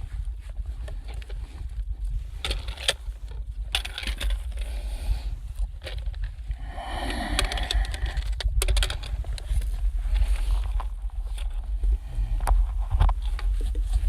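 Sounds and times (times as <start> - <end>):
wind rumbling on microphone: 0.0 - 14.0
rustling hiss: 6.6 - 8.4.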